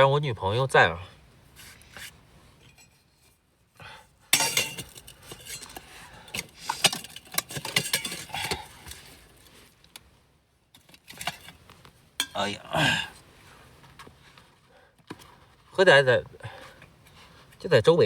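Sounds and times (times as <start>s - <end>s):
cookware clinking and knocking: 4.4s - 5.7s, 6.8s - 8.3s, 12.2s - 12.4s.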